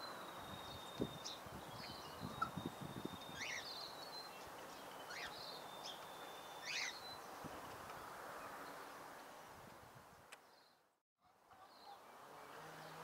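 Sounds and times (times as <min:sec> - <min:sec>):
small bird calling: 0:00.5 - 0:07.2.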